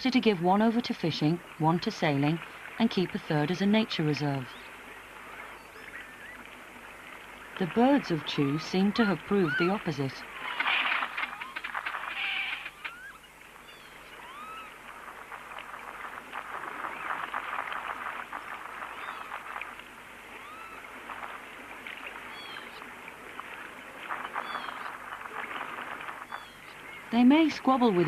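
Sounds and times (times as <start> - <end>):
waterbirds chattering: 0.0 - 28.0
whistled bird calls: 10.4 - 14.8, 18.8 - 19.5, 20.4 - 20.9, 22.3 - 22.8, 24.1 - 27.2.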